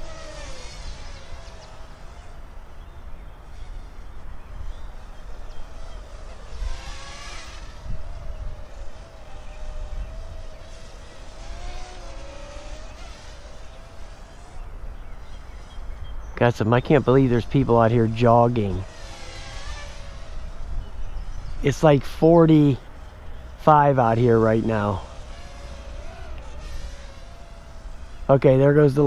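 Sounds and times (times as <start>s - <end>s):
drone propellers whining: 0.0s - 29.0s
wind rumble on microphone: 1.0s - 12.3s, 13.6s - 22.0s.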